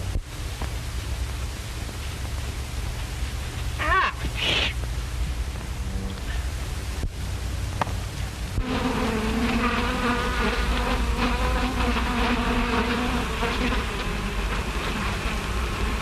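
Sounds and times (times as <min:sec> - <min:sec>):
film soundtrack hum and hiss: 0:00.0 - 0:16.0
bees buzzing: 0:08.5 - 0:16.0.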